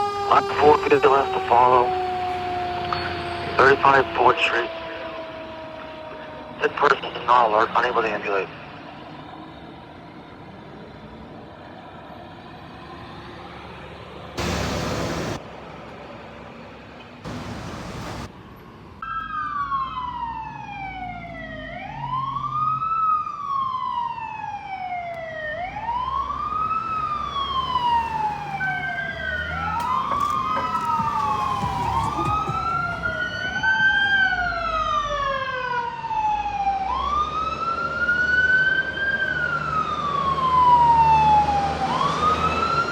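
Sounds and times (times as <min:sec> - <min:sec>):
sirens wailing: 0:00.0 - 0:15.4, 0:17.2 - 0:42.9.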